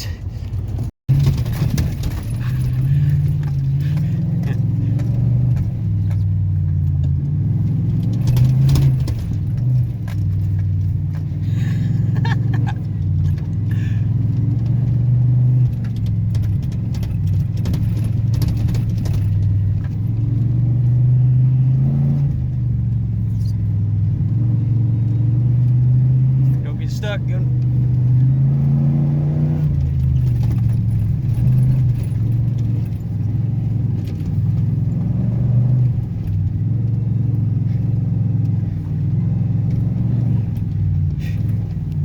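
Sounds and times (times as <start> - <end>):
truck engine and road drone: 0.0 - 42.0
loose clinks and rattles: 0.6 - 4.2, 15.6 - 20.0.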